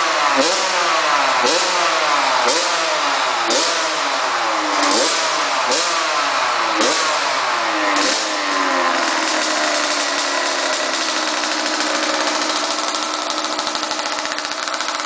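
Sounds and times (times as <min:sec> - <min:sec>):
two-stroke engine revving: 0:00.0 - 0:15.0.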